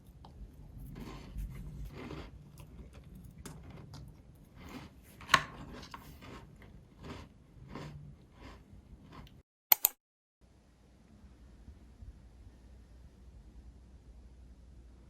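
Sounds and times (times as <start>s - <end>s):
sharp click: 9.7s - 10.0s.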